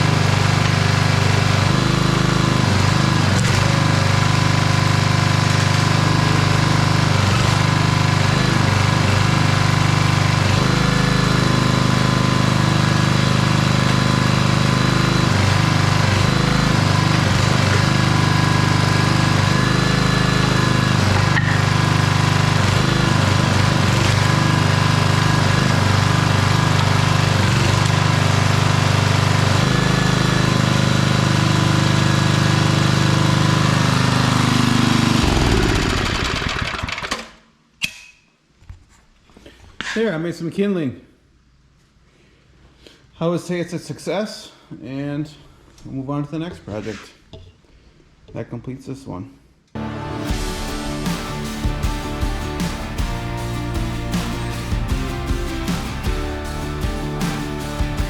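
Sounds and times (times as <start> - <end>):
single-cylinder engine running: 0.0 - 37.2, 49.8 - 58.0.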